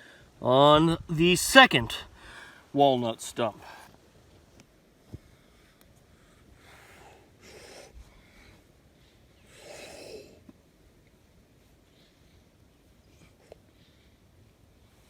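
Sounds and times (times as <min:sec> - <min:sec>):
faint outdoor background: 0:00.0 - 0:15.0
man breathing heavily: 0:02.1 - 0:02.7, 0:05.2 - 0:10.4.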